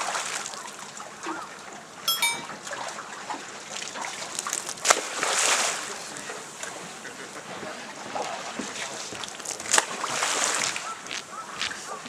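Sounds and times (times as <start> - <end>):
ringing clinks: 2.1 - 2.5
water trickling and splashing: 3.5 - 6.7.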